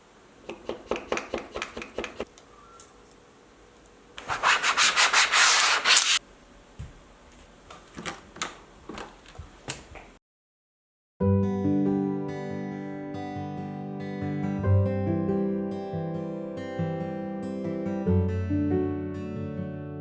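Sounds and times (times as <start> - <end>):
rubbing strokes on hard surface: 4.2 - 6.2.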